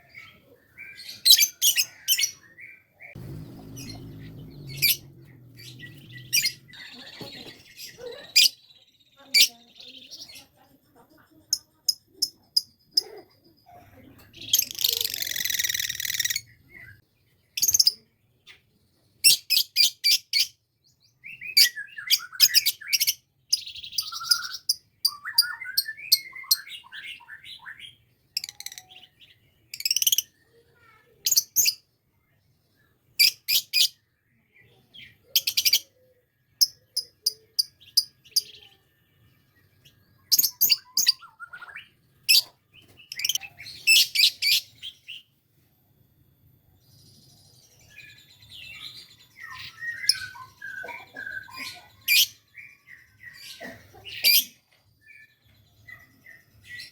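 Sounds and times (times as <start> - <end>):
lovebird chirping: 0.0 - 10.6, 14.4 - 18.1, 21.2 - 31.8, 35.0 - 45.3
lovebird rasping chatter: 14.6 - 16.4.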